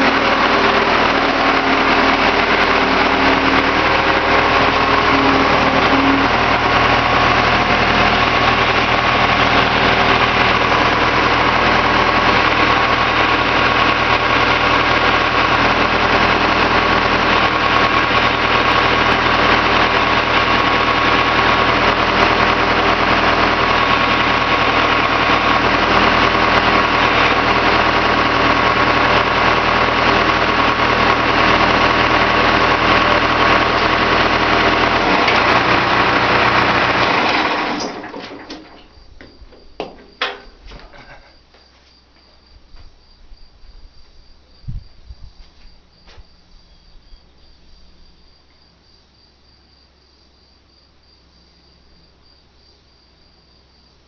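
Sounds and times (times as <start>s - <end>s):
loader engine idling: 0.0s - 41.6s.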